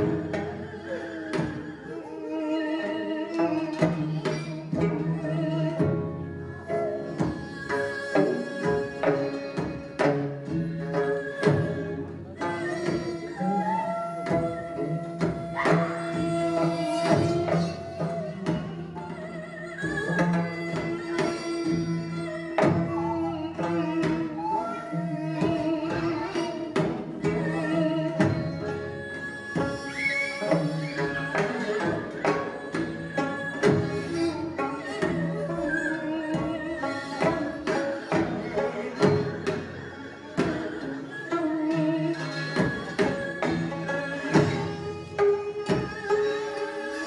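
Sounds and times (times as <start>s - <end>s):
traditional instrument ensemble melody: 0.0s - 47.0s
wavering wind or bowed melody: 12.9s - 26.3s.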